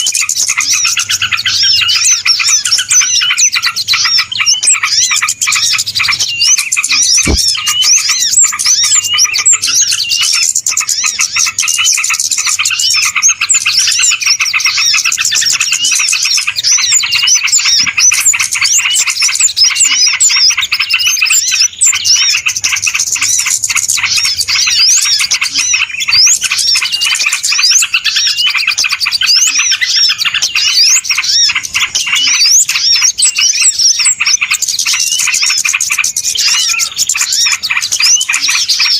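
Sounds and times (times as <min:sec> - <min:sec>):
small birds chirping and twittering: 0:00.0 - 0:38.9.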